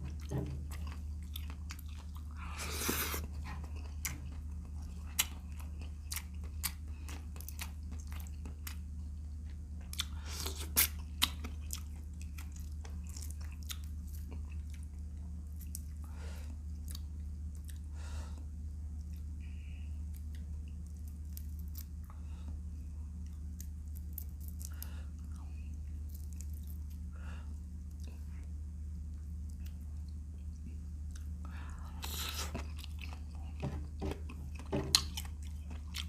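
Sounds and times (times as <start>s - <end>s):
crunching and slurping: 0.0s - 8.8s, 9.4s - 16.0s, 30.6s - 36.0s
chewing and biting food: 0.0s - 19.4s, 29.0s - 36.0s
steady low hum: 0.0s - 36.0s.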